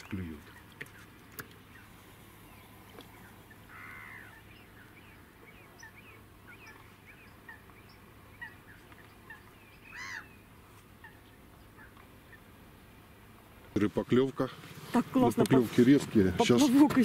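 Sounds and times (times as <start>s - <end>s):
harsh bird calls: 0.0s - 13.0s
small birds chirping: 0.0s - 17.0s.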